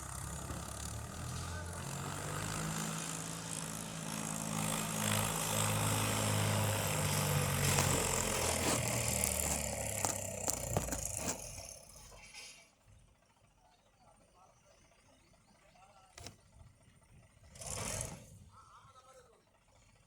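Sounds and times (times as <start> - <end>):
tractor engine running: 0.0 - 13.5.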